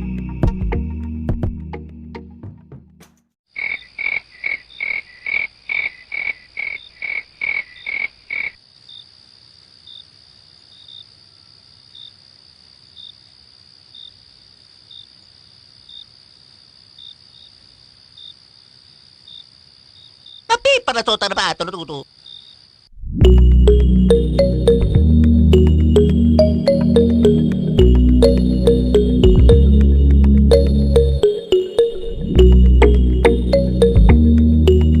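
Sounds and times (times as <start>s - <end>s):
frog croaking: 3.5s - 9.1s, 19.2s - 22.8s.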